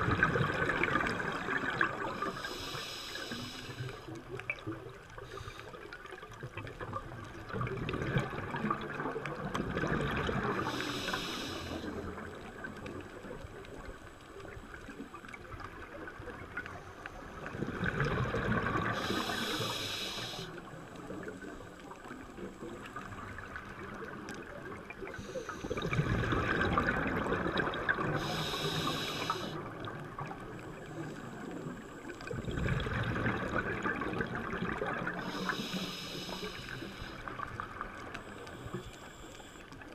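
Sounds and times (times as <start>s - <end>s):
bubbling exhale underwater: 0.0s - 2.7s, 6.4s - 12.8s, 17.4s - 38.3s
regulator inhale hiss: 2.1s - 4.2s, 5.2s - 5.9s, 10.4s - 12.4s, 18.8s - 23.4s, 25.1s - 26.4s, 28.0s - 29.8s, 35.1s - 39.9s.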